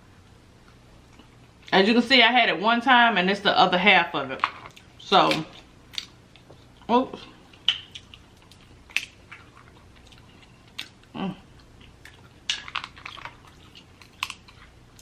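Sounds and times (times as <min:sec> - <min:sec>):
wet chewing: 0:04.6 - 0:15.0
crab shells cracking: 0:07.6 - 0:15.0.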